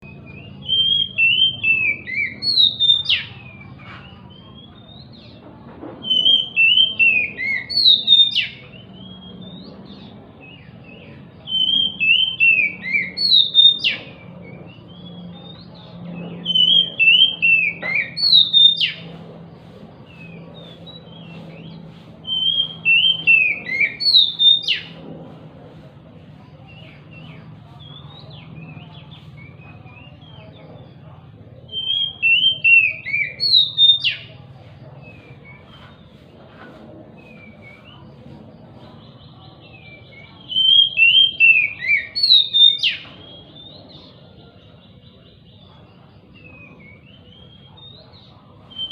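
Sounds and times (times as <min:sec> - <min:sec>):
bird whistled song phrase: 0:00.0 - 0:05.4, 0:06.0 - 0:19.1, 0:20.1 - 0:25.0, 0:31.7 - 0:34.3, 0:39.0 - 0:44.3, 0:46.3 - 0:48.9.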